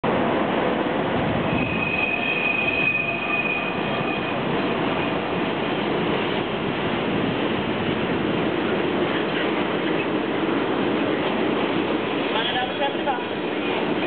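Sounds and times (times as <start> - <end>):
train wheels rumbling on rails: 0.0 - 14.0
high thin squeal: 1.4 - 4.4.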